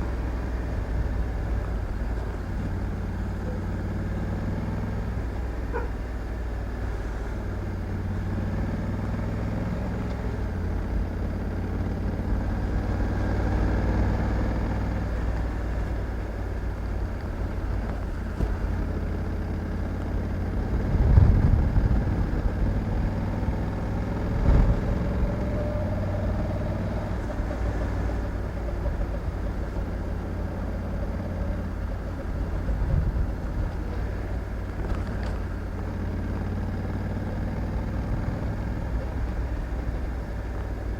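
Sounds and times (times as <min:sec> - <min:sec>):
motorcycle engine running: 0:00.0 - 0:40.9
riding noise: 0:10.2 - 0:40.9.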